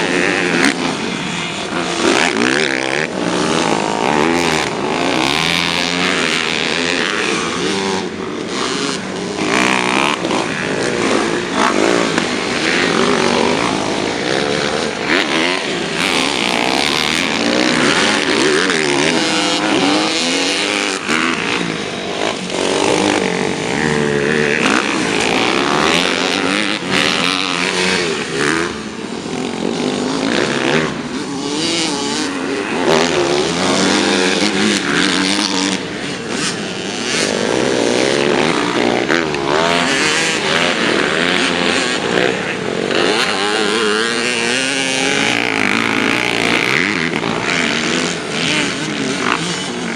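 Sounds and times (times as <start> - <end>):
dirt bike engines revving: 0.0 - 49.9.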